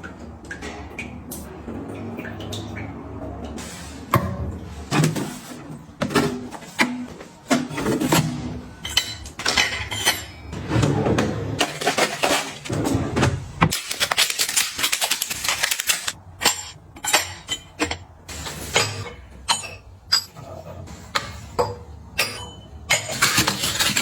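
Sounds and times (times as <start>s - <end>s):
kitchen containers clinking and knocking: 4.1s - 24.0s
packaging rustling: 13.7s - 16.2s.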